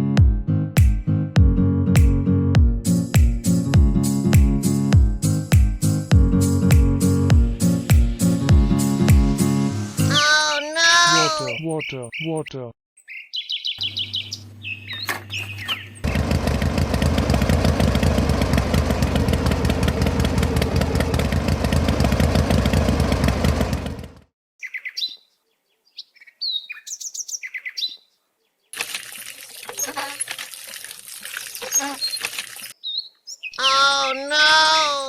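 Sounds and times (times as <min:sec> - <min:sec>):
birds chirping: 0:10.0 - 0:16.3, 0:24.6 - 0:28.8, 0:31.3 - 0:35.0.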